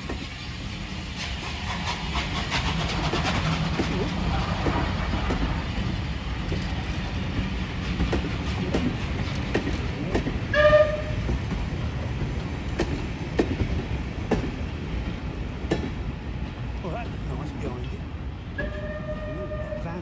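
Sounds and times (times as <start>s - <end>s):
wheels clicking over rail joints: 0.0s - 16.1s
train rumbling: 0.0s - 20.0s
train whistle toot: 10.5s - 11.3s, 18.6s - 20.0s.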